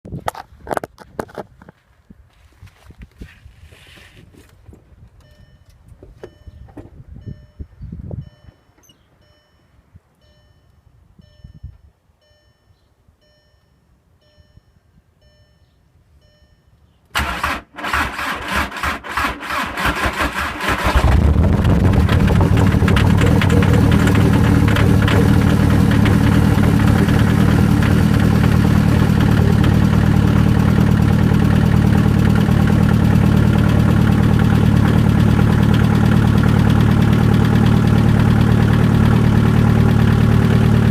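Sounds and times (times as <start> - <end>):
faint repeating chime: 5.3 - 16.8
diesel engine cranking: 17.1 - 40.9
loud diesel engine idling: 21.7 - 40.9.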